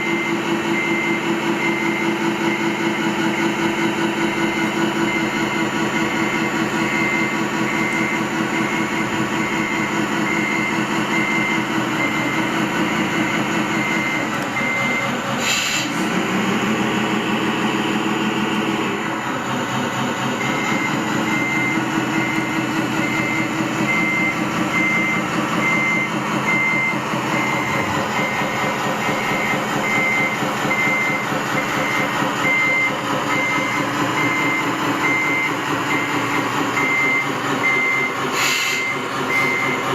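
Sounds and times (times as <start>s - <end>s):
reversing alarm beeping: 0.0s - 16.2s, 20.3s - 39.9s
truck engine running: 0.0s - 39.9s
burst of hiss: 15.4s - 16.0s.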